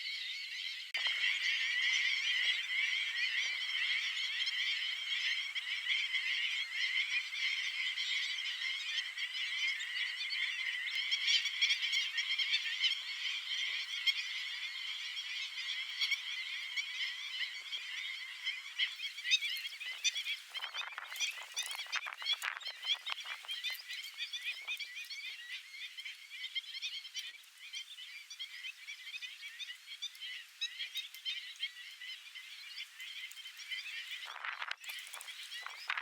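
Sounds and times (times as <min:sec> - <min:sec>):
flock of birds chattering: 0:00.0 - 0:36.0.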